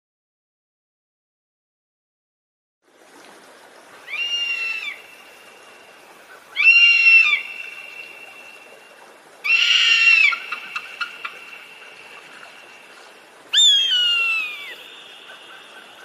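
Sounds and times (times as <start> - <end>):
eagle high-pitched calls: 4.1 - 5.2, 6.5 - 8.7, 9.4 - 12.9, 13.5 - 16.0.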